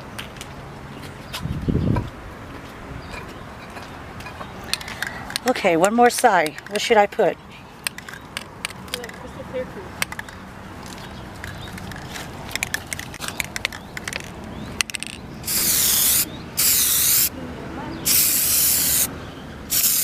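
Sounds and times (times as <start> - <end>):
spray can clicks and rattles: 11.4 - 17.3, 18.1 - 19.1, 19.7 - 20.0
hissing paint sprays: 15.4 - 17.3, 18.0 - 19.1, 19.7 - 20.0.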